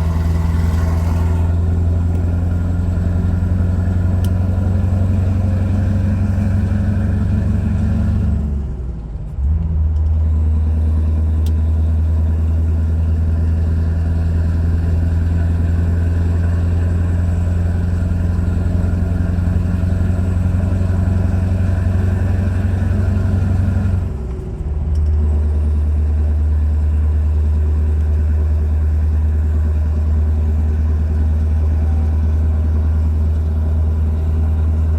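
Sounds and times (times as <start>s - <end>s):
truck diesel engine running: 0.0s - 34.9s.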